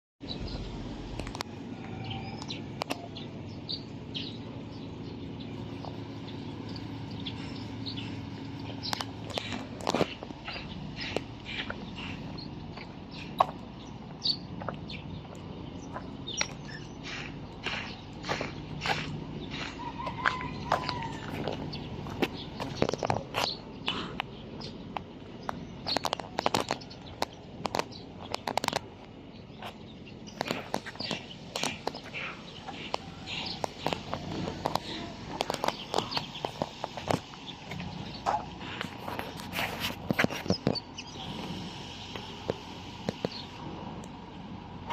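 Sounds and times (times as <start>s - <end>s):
low machine hum: 0.2s - 25.9s
birds chirping: 0.2s - 44.9s
sharp clicks: 24.9s - 37.9s.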